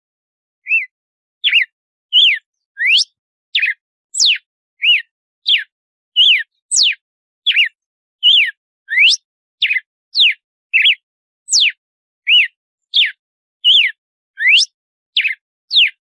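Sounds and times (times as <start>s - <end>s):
bird whistling song: 0.6s - 16.0s.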